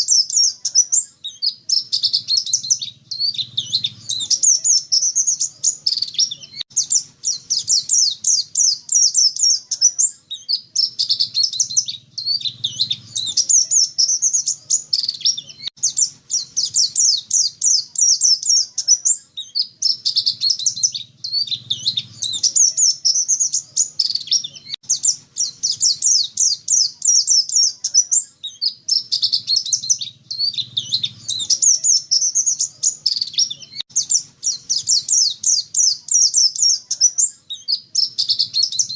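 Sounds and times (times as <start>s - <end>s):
bird twittering song: 0.0s - 38.9s.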